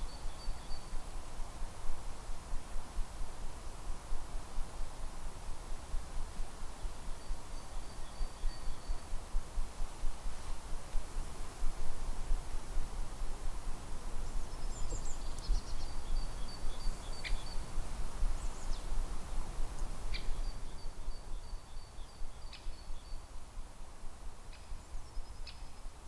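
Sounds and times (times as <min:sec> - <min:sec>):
small bird singing: 0:00.0 - 0:01.0, 0:06.8 - 0:09.2, 0:14.4 - 0:19.0, 0:19.8 - 0:23.4, 0:24.5 - 0:25.9
wind rumbling on microphone: 0:00.0 - 0:26.0.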